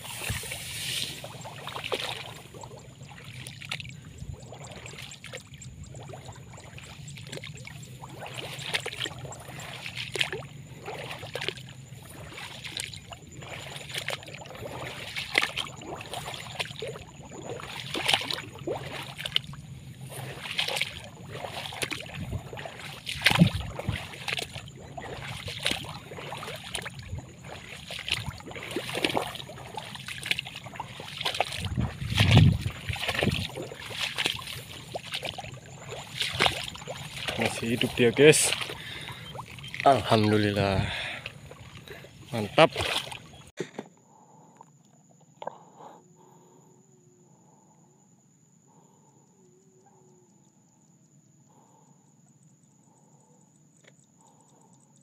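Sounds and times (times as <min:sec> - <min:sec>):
water sloshing and splashing: 0:00.0 - 0:45.8.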